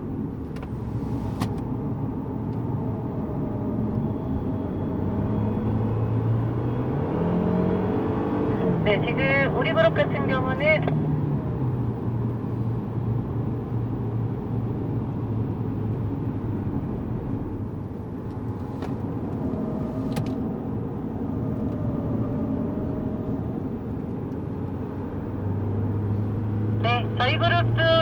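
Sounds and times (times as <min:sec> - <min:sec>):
road noise: 0:00.0 - 0:28.0
car engine running: 0:00.1 - 0:02.9, 0:15.6 - 0:28.0.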